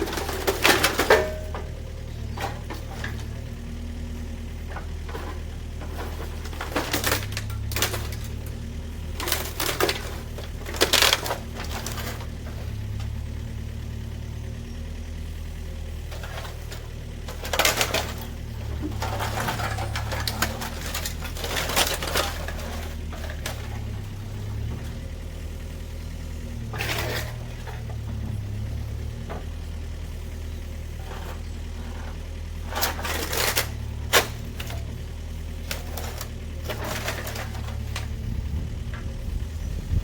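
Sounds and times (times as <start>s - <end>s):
sharp clanks and knocks: 0.0s - 3.7s, 4.5s - 13.3s, 16.0s - 25.1s
engine running: 0.0s - 40.0s.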